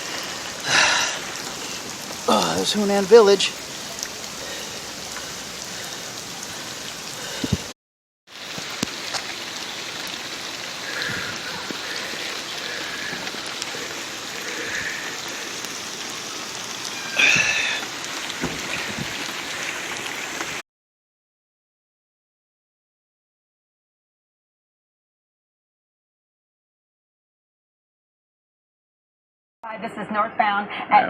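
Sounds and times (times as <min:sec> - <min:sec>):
heavy rain pouring: 0:00.0 - 0:20.6
sharp raindrop hits: 0:08.3 - 0:20.6.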